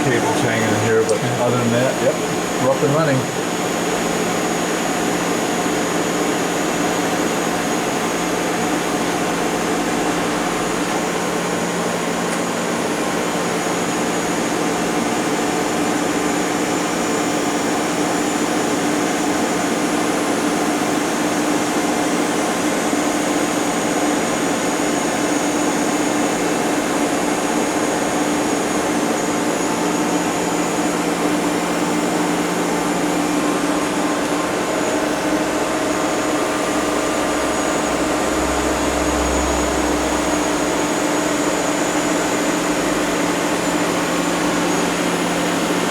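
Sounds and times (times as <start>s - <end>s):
machine whir and hum: 0.0s - 45.9s.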